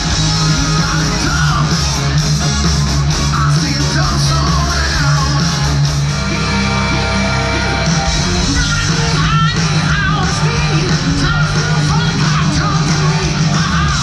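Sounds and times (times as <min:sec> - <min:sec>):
electric guitar: 0:00.0 - 0:14.0
heavy bass line: 0:00.0 - 0:14.0
rock music: 0:00.0 - 0:14.0
person singing: 0:06.9 - 0:14.0.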